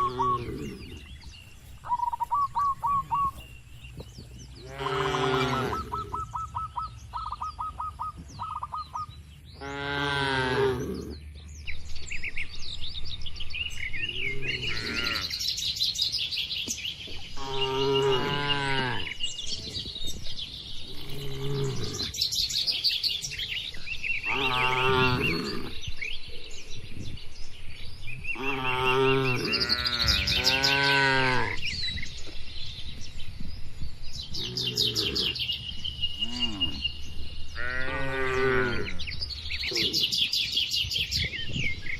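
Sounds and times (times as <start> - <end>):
birds chirping: 0.0 - 41.9
cattle mooing: 4.6 - 6.1, 24.3 - 25.8.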